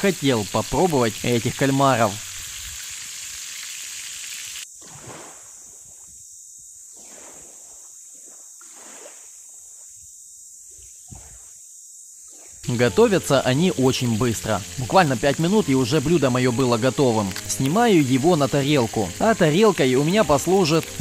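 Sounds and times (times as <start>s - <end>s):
squid sizzling in a pan: 0.7s - 4.7s, 12.6s - 21.0s
water sloshing: 4.7s - 6.1s, 6.9s - 9.8s.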